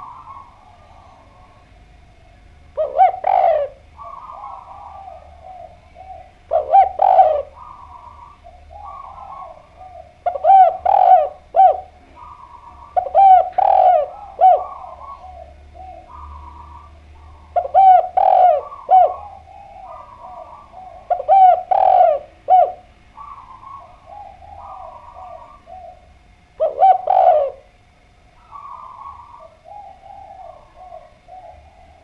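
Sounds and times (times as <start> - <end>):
dove cooing: 0.0 - 32.0.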